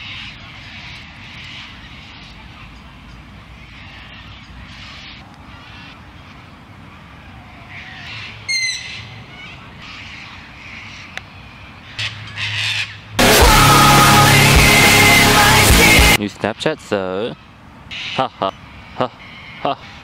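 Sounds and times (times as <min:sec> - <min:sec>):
high bird call: 0:07.6 - 0:11.1.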